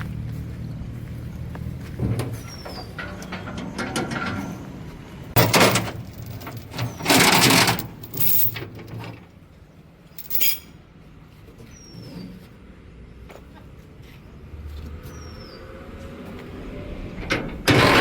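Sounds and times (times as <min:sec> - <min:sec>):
low engine hum: 0:00.0 - 0:06.8.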